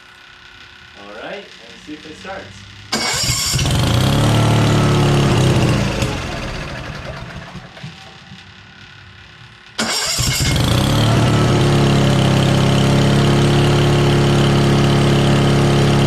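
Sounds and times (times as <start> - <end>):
engine starting and running: 0.3 - 16.0.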